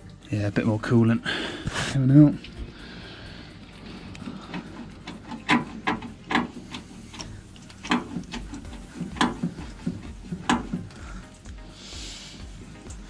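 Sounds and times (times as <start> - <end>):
sharp clicks and light knocks: 3.8 - 11.6.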